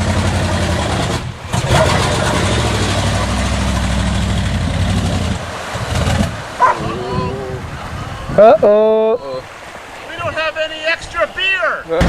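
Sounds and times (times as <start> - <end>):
truck engine running: 0.0 - 5.5.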